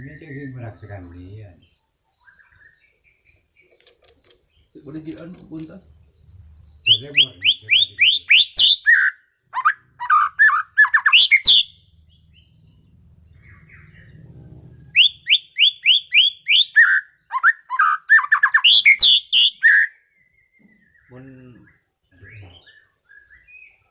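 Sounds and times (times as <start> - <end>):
bird singing whistled notes: 0.0 - 4.8, 6.2 - 23.9
lower fluty bird phrases: 0.0 - 23.8.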